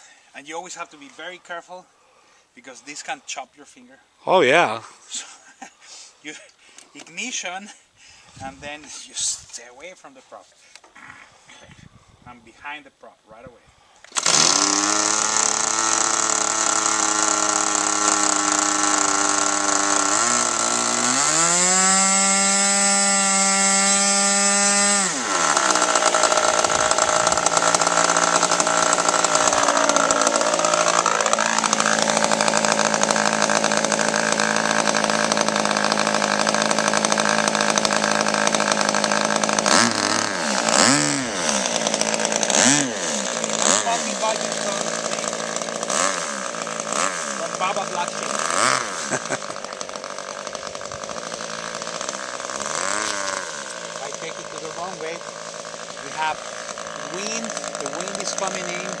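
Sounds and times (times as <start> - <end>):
model airplane engine revving: 14.0 - 59.0.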